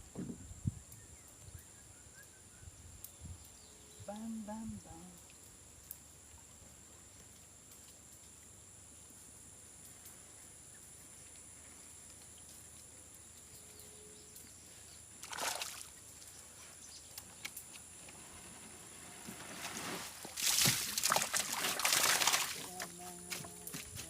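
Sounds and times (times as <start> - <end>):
faint steady hiss: 0.0 - 24.0
water splashing: 15.2 - 16.0, 19.4 - 23.9.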